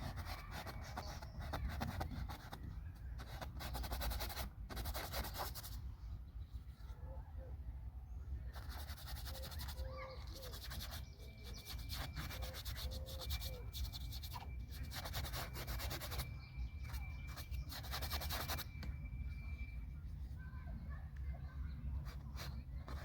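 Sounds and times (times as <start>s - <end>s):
paintbrush scrubbing paint: 3.2s - 5.8s, 8.6s - 18.7s.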